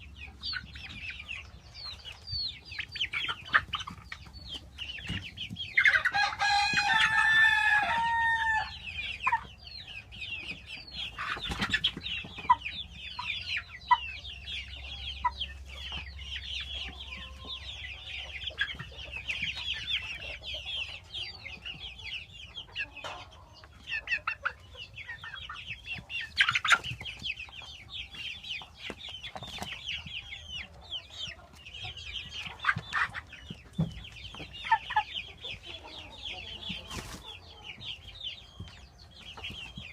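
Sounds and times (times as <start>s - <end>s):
chickens clucking: 0.0s - 39.9s
rooster crowing: 6.1s - 8.8s.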